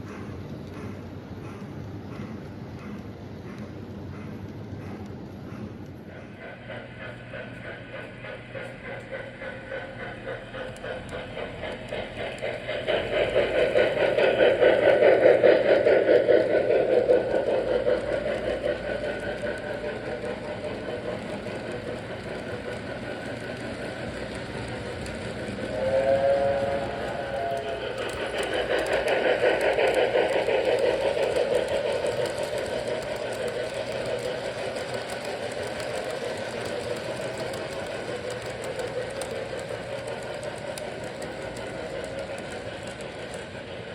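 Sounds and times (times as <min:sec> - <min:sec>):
model train wheels clicking on rails: 0:00.0 - 0:43.9
train whistle: 0:25.6 - 0:28.4.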